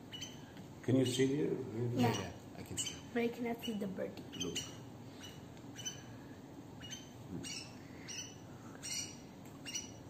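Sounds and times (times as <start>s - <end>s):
pet bird chirping: 0.0s - 0.5s, 2.0s - 6.2s, 6.8s - 10.0s.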